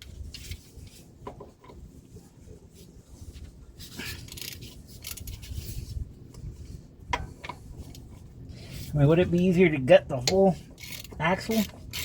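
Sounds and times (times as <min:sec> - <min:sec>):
rustling scrape: 0:00.0 - 0:09.1
hand tools clicking and scraping: 0:03.8 - 0:05.8, 0:10.2 - 0:12.0.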